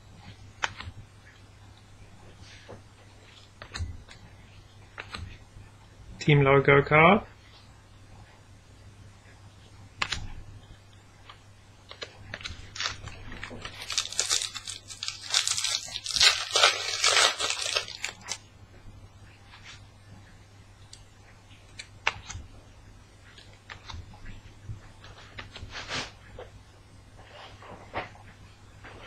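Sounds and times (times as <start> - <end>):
cards clicking and tapping: 3.6 - 4.2
wrapper tearing and crinkling: 12.4 - 18.4.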